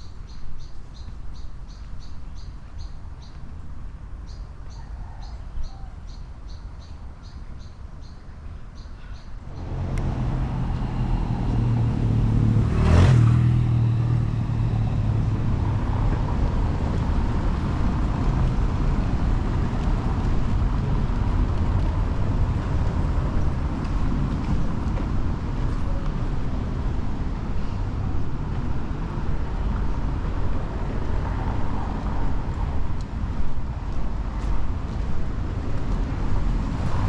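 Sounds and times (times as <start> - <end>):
road traffic: 0.0 - 37.0
vehicle passing close: 9.5 - 23.6.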